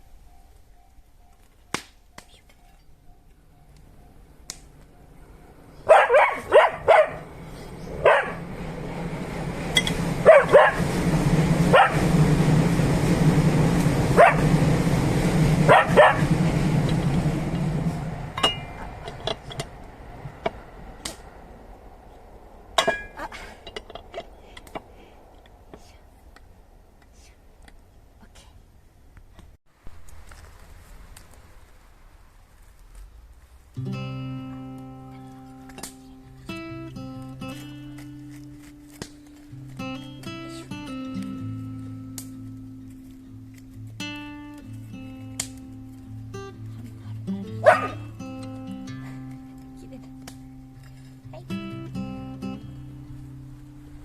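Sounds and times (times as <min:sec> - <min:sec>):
low rumble: 0:03.6 - 0:27.0
dog barking: 0:05.8 - 0:07.3, 0:08.0 - 0:08.5, 0:10.2 - 0:11.0, 0:11.7 - 0:12.1, 0:14.1 - 0:14.5, 0:15.7 - 0:16.3, 0:47.6 - 0:48.1.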